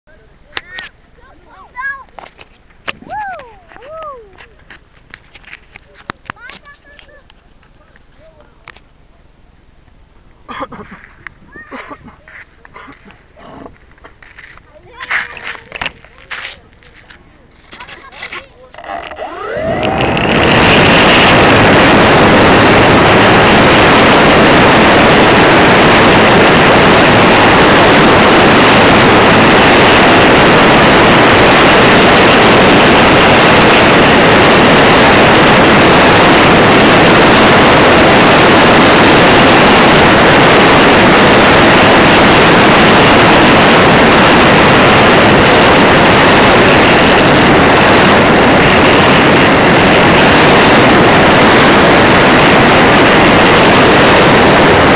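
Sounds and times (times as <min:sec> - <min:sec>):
wind noise: 0:00.6 - 0:54.9
model plane motor and propeller drone: 0:17.8 - 0:54.9.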